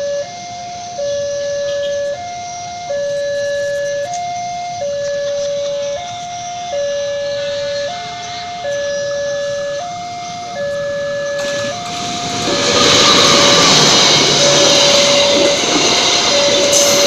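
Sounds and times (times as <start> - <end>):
level crossing alarm: 0.0 - 17.0
train wheels on rails: 10.4 - 17.0.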